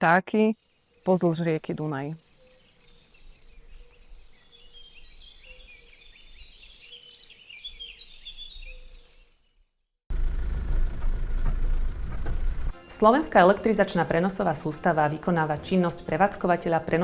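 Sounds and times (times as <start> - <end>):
insects trilling: 0.5 - 10.0
loud low rumble: 10.1 - 12.8
low rumble: 10.1 - 12.8.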